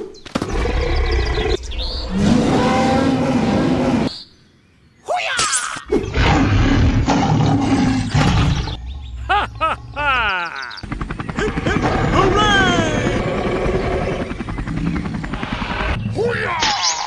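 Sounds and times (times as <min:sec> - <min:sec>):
dinosaur roar: 0:00.5 - 0:04.1, 0:05.9 - 0:08.8.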